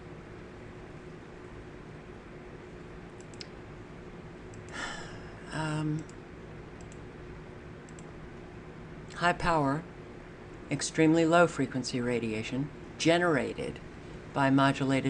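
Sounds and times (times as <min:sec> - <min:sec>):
electrical room hum: 0:00.0 - 0:15.0
faint clicks: 0:03.2 - 0:03.5, 0:07.9 - 0:08.1
person inhaling: 0:04.7 - 0:05.5
person humming mm: 0:04.8 - 0:06.1.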